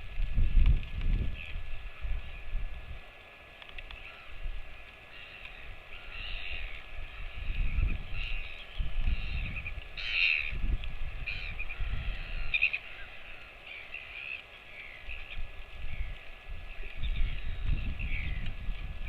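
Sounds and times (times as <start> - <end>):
wind rumbling on microphone: 0.0 - 19.0
harsh bird calls: 5.0 - 18.5.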